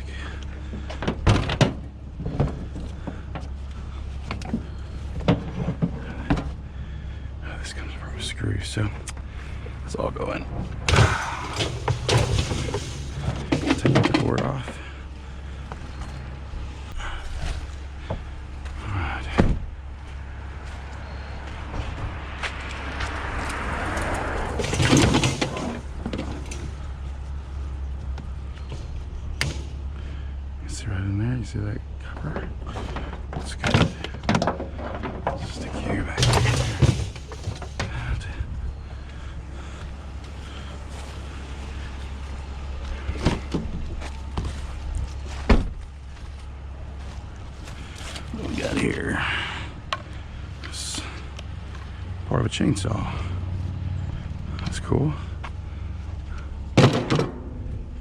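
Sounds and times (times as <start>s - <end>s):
steady low hum: 0.0s - 58.0s
scrap items knocking and clattering: 10.9s - 14.6s, 24.5s - 26.7s, 32.7s - 38.1s.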